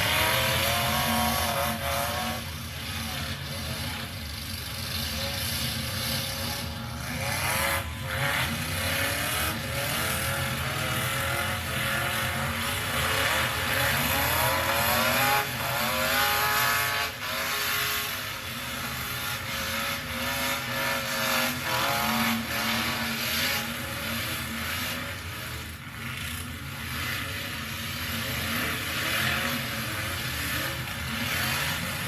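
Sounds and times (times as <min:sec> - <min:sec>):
truck engines revving: 0:00.0 - 0:32.0.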